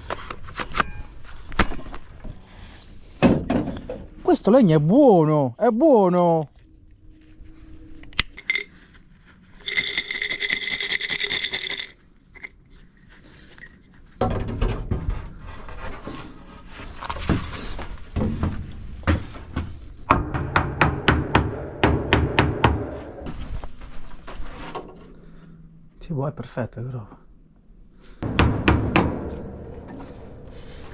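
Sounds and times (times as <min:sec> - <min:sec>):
scraping and knocking on wood: 0:14.2 - 0:23.4.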